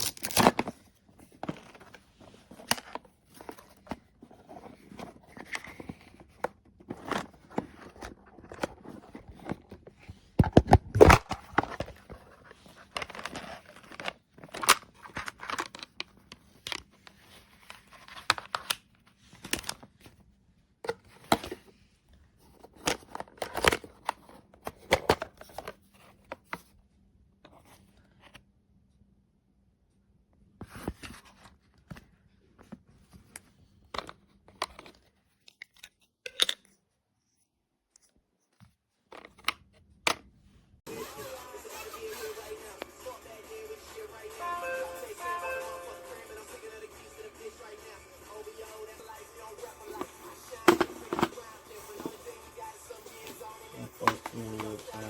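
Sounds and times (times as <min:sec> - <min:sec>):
rustling and crinkling: 0:00.0 - 0:20.3, 0:49.7 - 0:53.4.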